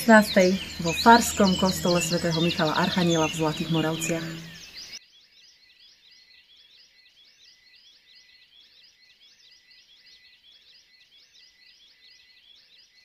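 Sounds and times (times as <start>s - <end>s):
rapid high bird chirps: 0.0s - 7.4s.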